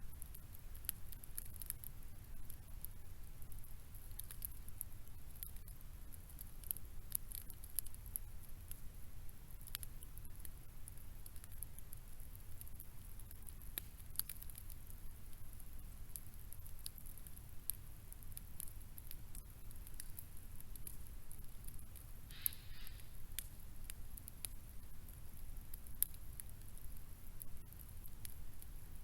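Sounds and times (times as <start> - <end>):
faint crackling and ticking: 0.0 - 29.0
short hiss: 22.3 - 23.2.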